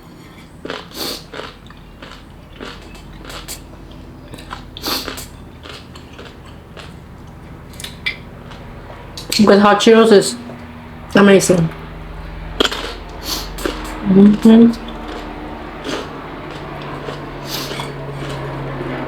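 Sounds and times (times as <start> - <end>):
person biting crunchy pickle: 0.6 - 3.6, 4.4 - 7.0, 12.6 - 14.1, 14.8 - 18.7.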